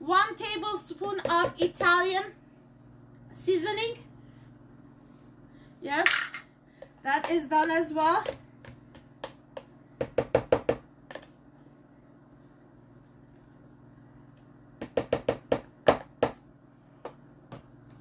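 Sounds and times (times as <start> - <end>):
utensil knocking mixing bowl: 1.0 - 2.1, 7.1 - 11.2, 14.8 - 16.4.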